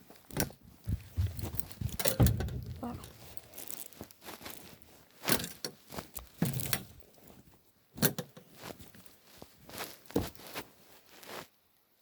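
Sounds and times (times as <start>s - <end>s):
cat scuffling and tapping: 0.2s - 3.4s.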